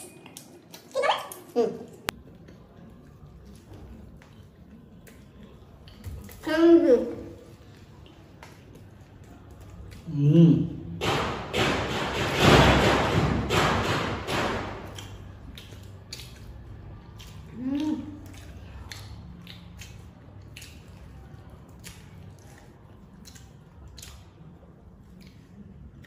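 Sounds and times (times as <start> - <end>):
biting and chewing: 14.6 - 26.0
wet mouth clicks: 14.9 - 26.0.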